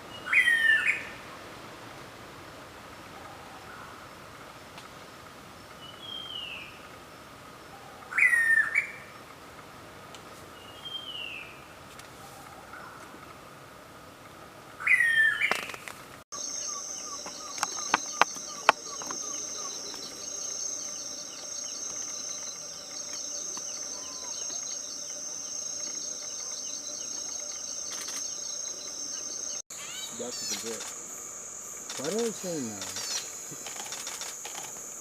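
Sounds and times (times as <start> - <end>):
high insect drone: 12.8 - 35.0
bird squawk: 16.4 - 21.8, 29.7 - 30.8
small bird chirps: 16.4 - 31.0, 32.0 - 34.3
sharp clicks: 30.5 - 31.1, 31.8 - 34.8.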